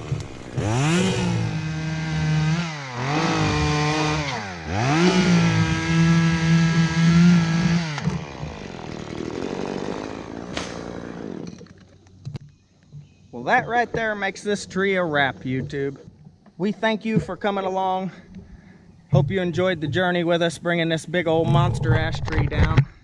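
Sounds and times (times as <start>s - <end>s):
chainsaw revving and cutting: 0.0s - 11.8s.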